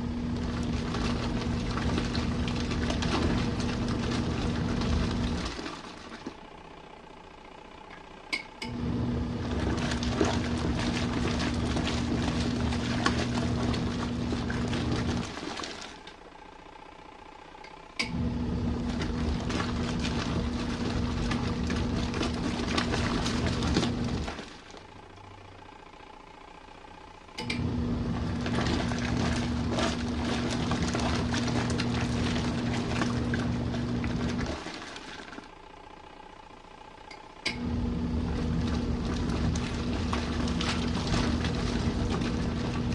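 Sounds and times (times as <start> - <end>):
water churning: 0.0 - 6.5, 8.8 - 16.2, 18.2 - 25.1, 27.6 - 35.6, 37.6 - 42.9
washing machine motor humming: 0.0 - 42.9
washing machine click: 27.4 - 27.7, 37.1 - 37.7.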